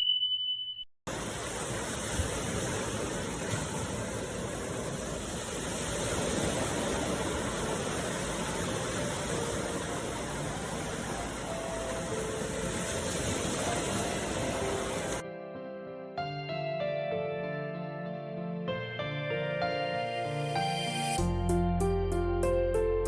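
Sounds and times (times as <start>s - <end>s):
sea water rushing: 1.1s - 15.2s.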